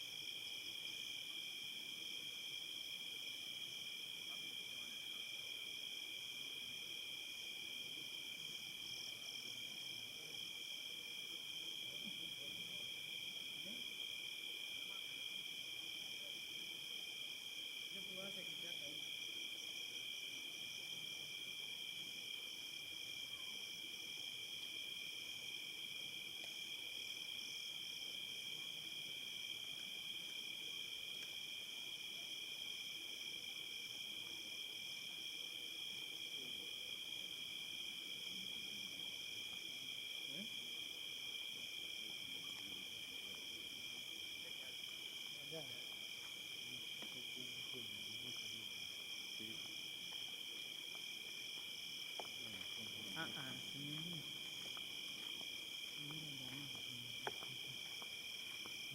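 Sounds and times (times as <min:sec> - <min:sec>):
crickets trilling: 0:00.0 - 0:58.9.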